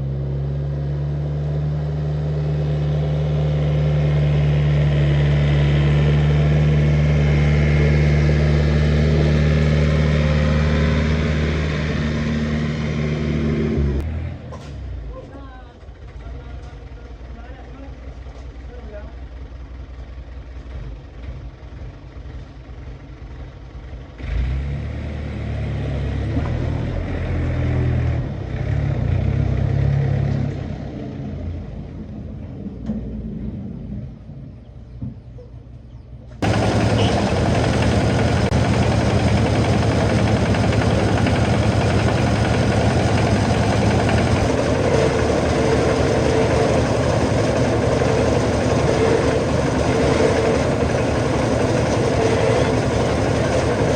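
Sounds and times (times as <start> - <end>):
motor engine running: 0.0 - 14.1, 36.4 - 53.9
loud steady machine noise: 3.6 - 14.0, 36.4 - 53.9.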